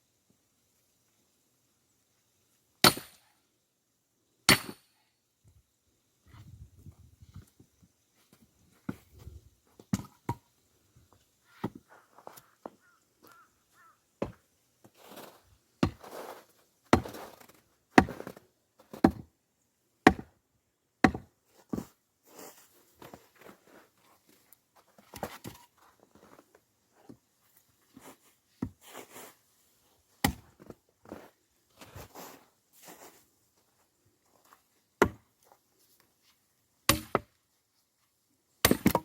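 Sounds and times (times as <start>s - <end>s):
axe chopping firewood: 2.8s - 3.2s, 4.5s - 4.9s, 15.8s - 16.0s, 18.0s - 18.4s, 19.0s - 19.3s, 20.0s - 20.3s, 21.0s - 21.3s, 30.2s - 30.5s, 35.0s - 35.2s, 36.9s - 37.3s, 38.6s - 39.0s.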